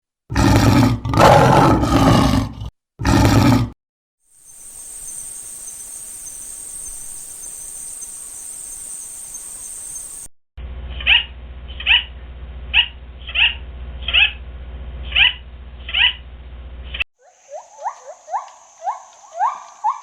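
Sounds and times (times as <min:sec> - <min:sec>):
lion roaring: 0:00.3 - 0:03.8
high-pitched insect drone: 0:04.3 - 0:10.3.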